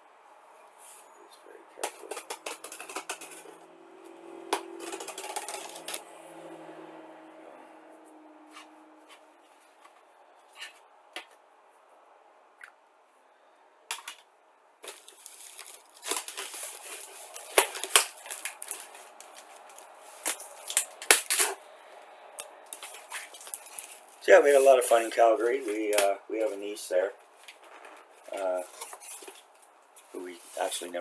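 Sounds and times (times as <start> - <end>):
cardboard clicks and knocks: 1.8 - 3.6
packing tape cut and torn: 1.8 - 3.6, 4.5 - 6.1, 14.8 - 21.6, 22.7 - 26.2, 28.3 - 30.7
cardboard rustling: 1.8 - 3.7, 4.5 - 6.2, 14.8 - 21.6, 22.7 - 31.0.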